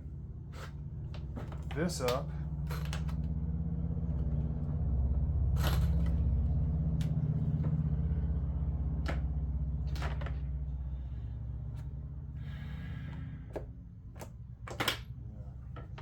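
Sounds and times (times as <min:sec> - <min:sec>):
low mechanical hum: 0:00.0 - 0:16.0
tools clicking and knocking: 0:13.5 - 0:16.0.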